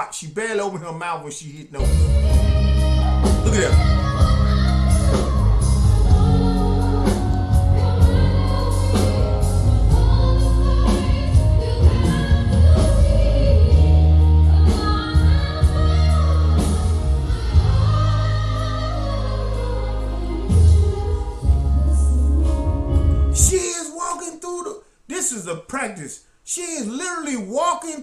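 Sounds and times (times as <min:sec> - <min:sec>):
heavy low bass line: 0:01.8 - 0:23.5
woman singing: 0:01.8 - 0:23.5.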